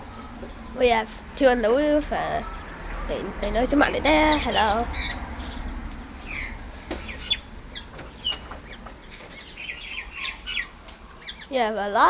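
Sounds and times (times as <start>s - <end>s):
birds chirping and squawking: 0.0s - 12.0s.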